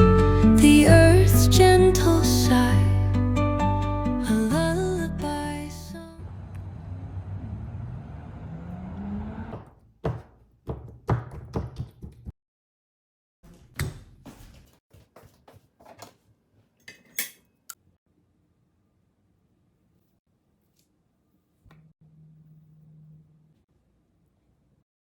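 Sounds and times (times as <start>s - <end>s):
kitchen knocks and clatters: 9.6s - 12.3s, 13.4s - 17.5s.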